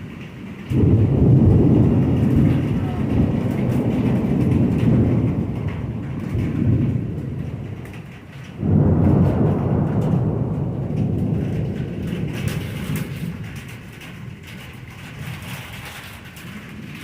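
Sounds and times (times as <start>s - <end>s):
loud thunderclap: 0.0s - 17.0s
thunder rumbling: 0.0s - 17.0s.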